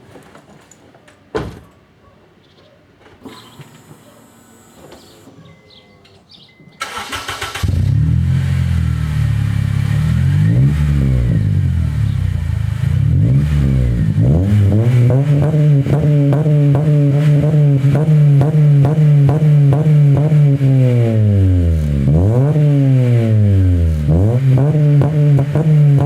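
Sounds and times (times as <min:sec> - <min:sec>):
car starter cranking: 0:06.8 - 0:08.4
loud car engine running: 0:07.6 - 0:26.0.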